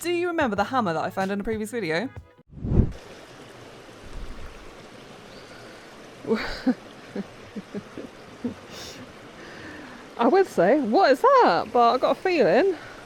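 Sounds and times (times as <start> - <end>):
flowing stream rushing: 3.0 - 13.0.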